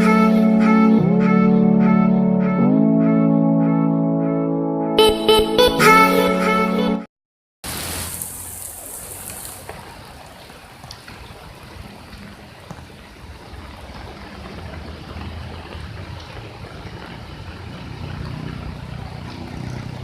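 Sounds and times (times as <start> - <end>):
short tune: 0.0 - 7.1.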